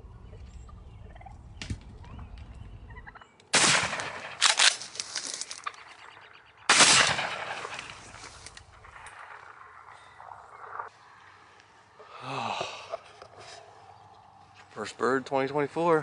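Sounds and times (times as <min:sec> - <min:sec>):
shotgun blasts: 0:03.5 - 0:04.8, 0:06.7 - 0:08.2.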